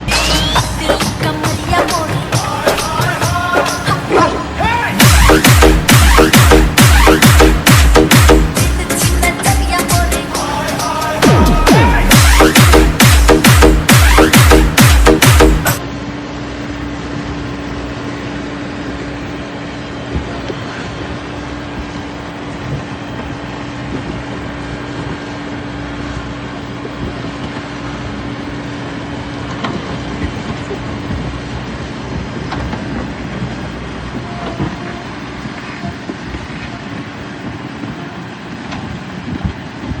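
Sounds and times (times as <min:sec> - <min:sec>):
diesel engine under load: 0:00.0 - 0:40.0.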